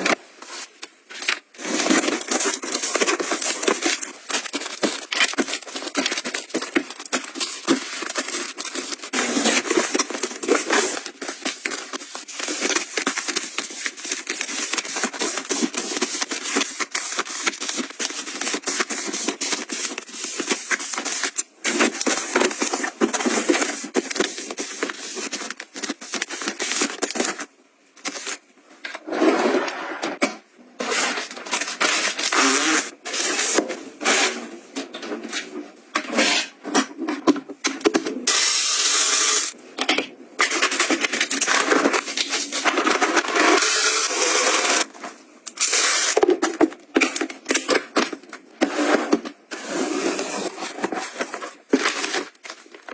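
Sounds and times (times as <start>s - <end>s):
packaging rustling and crinkling: 0.0s - 28.5s, 40.4s - 52.9s.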